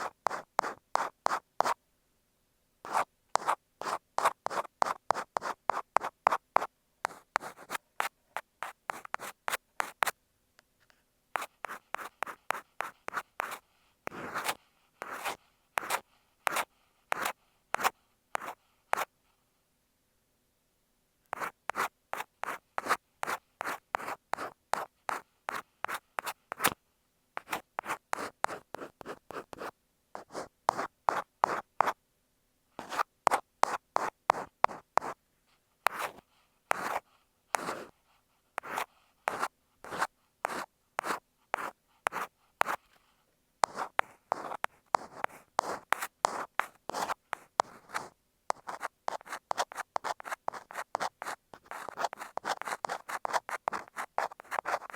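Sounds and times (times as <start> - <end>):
ear pick scratching on microphone: 11.4 - 16.6, 35.9 - 37.0, 43.6 - 54.9.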